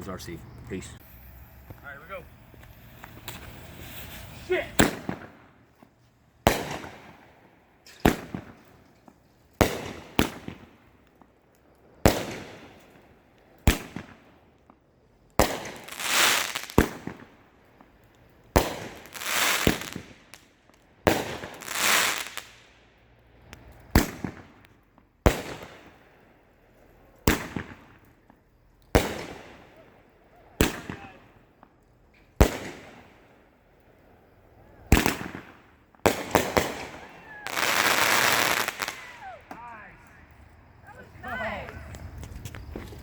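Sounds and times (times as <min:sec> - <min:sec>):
fireworks hissing: 0:00.0 - 0:08.6, 0:15.4 - 0:17.3, 0:18.5 - 0:24.7, 0:25.3 - 0:43.0
fireworks sharp reports: 0:00.0 - 0:08.6, 0:09.6 - 0:10.8, 0:15.4 - 0:17.3, 0:18.5 - 0:20.2, 0:21.1 - 0:22.6, 0:27.0 - 0:31.7, 0:32.4 - 0:33.5, 0:34.1 - 0:43.0.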